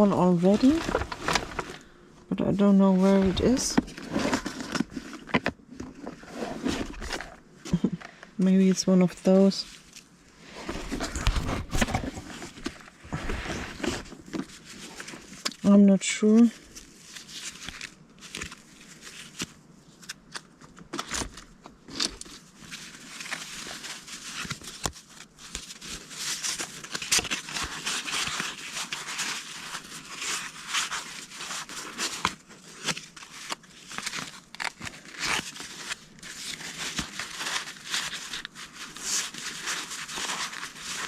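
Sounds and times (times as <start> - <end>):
paper cards rustling: 0.0 - 8.0, 10.6 - 15.6, 16.4 - 41.0.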